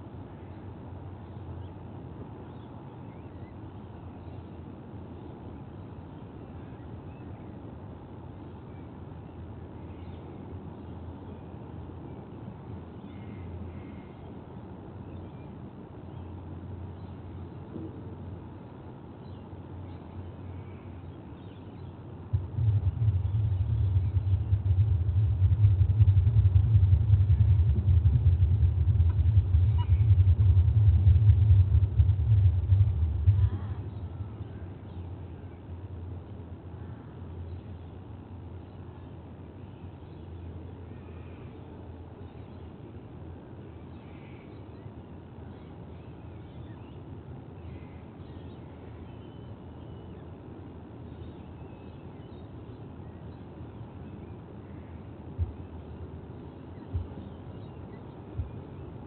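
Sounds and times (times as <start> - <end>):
low outdoor rumble: 0.0 - 59.0
faint bird chirps and whistles: 2.4 - 7.7, 15.0 - 18.4, 29.1 - 31.6, 43.8 - 50.4, 51.0 - 59.0
loud low rumble: 22.2 - 36.2.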